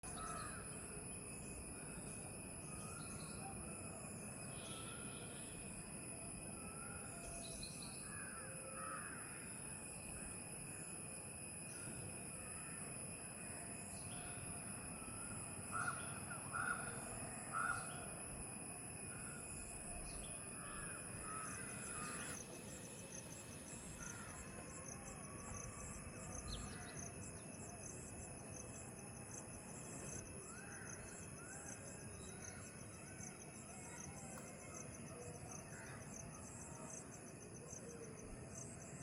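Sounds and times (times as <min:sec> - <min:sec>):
insects chirring: 0:00.0 - 0:39.0.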